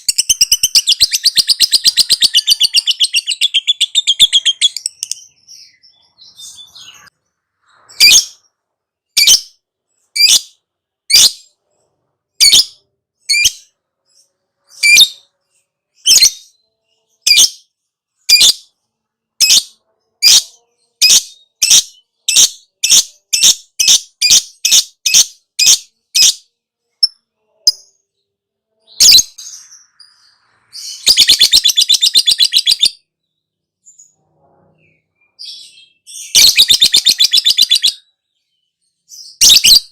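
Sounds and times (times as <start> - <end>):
lovebird chirping: 0.0 - 18.7, 19.4 - 28.0, 28.8 - 34.2, 34.8 - 39.9
lovebird chattering trill: 36.4 - 38.0.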